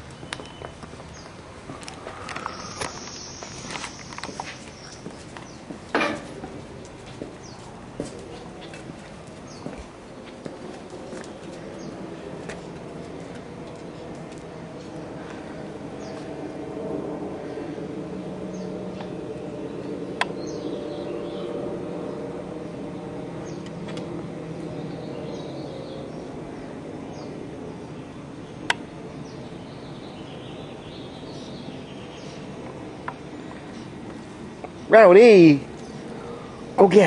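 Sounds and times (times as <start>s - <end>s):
small birds chirping: 0.0s - 16.4s, 18.4s - 37.0s
steady low hum: 0.0s - 37.0s.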